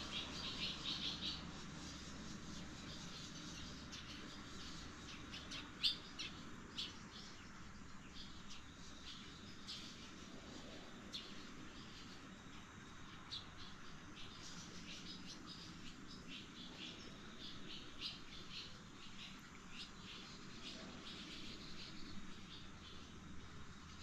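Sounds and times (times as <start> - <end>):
faint outdoor background noise: 0.0 - 24.0
small birds chirping: 0.0 - 24.0.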